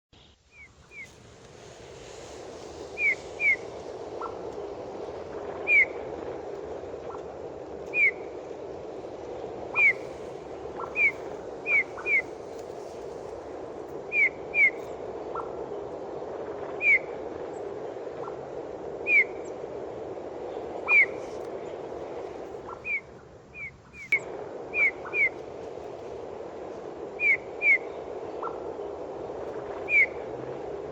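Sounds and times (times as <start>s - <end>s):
low rushing background: 0.2s - 30.9s
songbird whistling: 2.9s - 4.5s, 5.6s - 6.1s, 7.8s - 8.4s, 9.7s - 12.6s, 14.0s - 15.5s, 19.0s - 19.6s, 27.2s - 28.6s, 29.8s - 30.2s.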